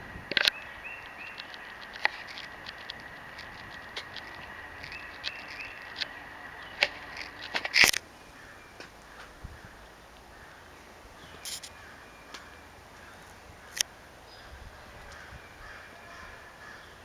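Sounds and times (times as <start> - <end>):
faint high whine: 0.0 - 10.2
small birds chirping: 0.0 - 17.0
sharp clicks and taps: 0.3 - 8.0.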